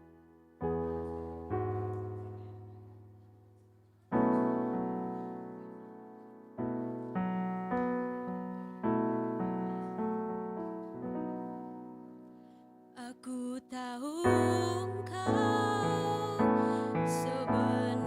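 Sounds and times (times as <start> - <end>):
piano chords ringing: 0.0 - 18.0.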